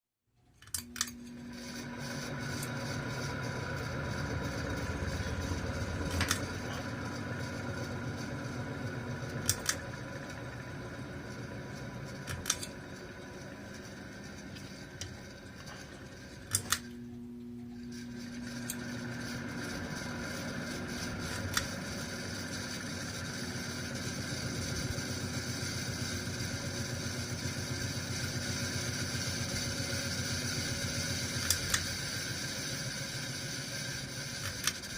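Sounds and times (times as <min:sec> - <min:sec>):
sharp mechanical clicks: 0:00.6 - 0:01.3, 0:06.1 - 0:06.5, 0:09.3 - 0:09.9, 0:12.2 - 0:12.8, 0:16.4 - 0:17.0, 0:21.2 - 0:21.8, 0:31.4 - 0:32.0, 0:34.4 - 0:34.9
machine mechanical drone: 0:00.6 - 0:34.9.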